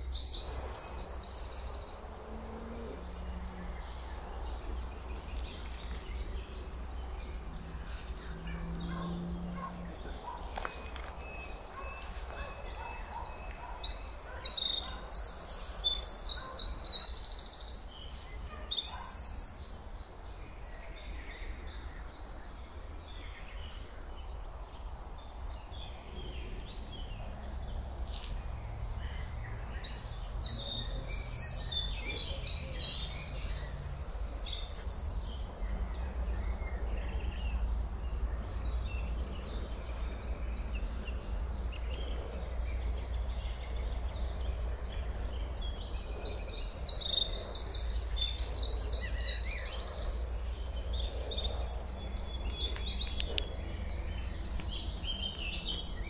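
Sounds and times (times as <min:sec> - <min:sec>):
songbird high trilled song: 0:00.0 - 0:02.2, 0:10.2 - 0:19.9, 0:29.3 - 0:39.5.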